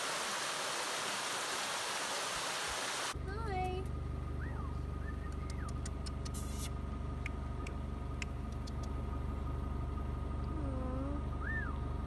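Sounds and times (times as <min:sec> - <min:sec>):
car engine idling: 0:03.2 - 0:12.0.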